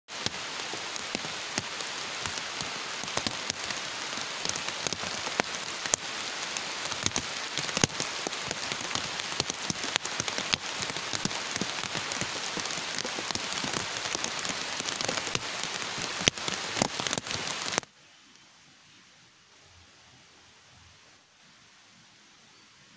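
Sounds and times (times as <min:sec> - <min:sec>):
heavy rain falling: 0:00.1 - 0:17.9.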